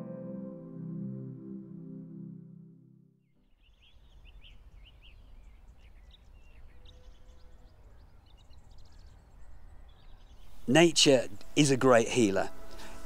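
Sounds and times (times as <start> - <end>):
soft ambient music: 0.0 - 3.0, 10.7 - 13.0
small birds chirping: 3.4 - 11.8.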